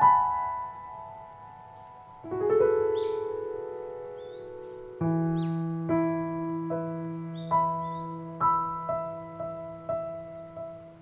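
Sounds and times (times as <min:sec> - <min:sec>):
slow gentle piano music: 0:00.0 - 0:11.0
high bird chirp: 0:02.8 - 0:03.4, 0:04.1 - 0:05.8, 0:07.1 - 0:09.1.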